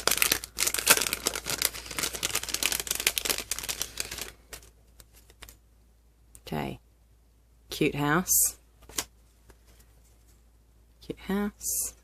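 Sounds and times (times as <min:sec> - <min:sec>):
packaging rustling and crinkling: 0:00.0 - 0:05.6.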